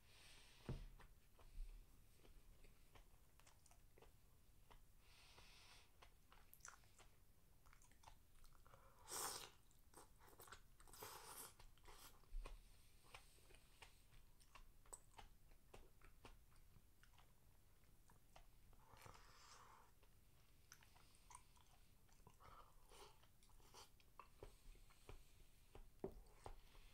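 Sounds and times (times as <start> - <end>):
person chewing crunchy food: 1.0 - 26.9
person slurping: 9.0 - 9.6.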